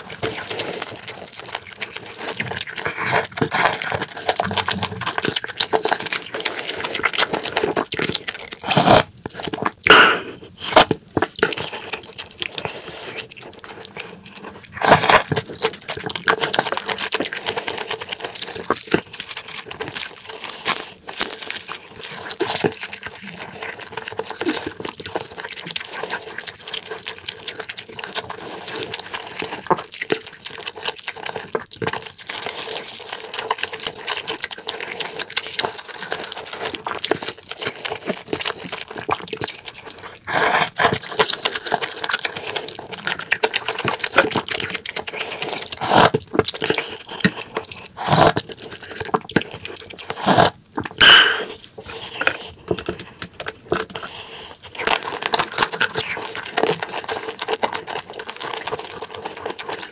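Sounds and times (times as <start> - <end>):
wet chewing and smacking: 0.0 - 59.9
loud slurps: 8.6 - 9.1, 40.3 - 40.9, 45.7 - 46.2, 48.0 - 48.4, 50.1 - 52.4.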